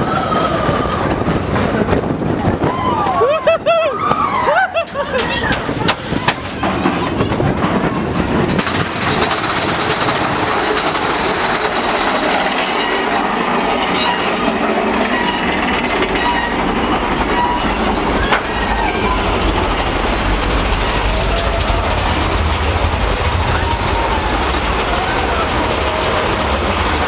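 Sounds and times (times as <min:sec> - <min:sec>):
roller coaster cars rattling: 0:00.0 - 0:27.0
wheel squeals: 0:04.0 - 0:27.0.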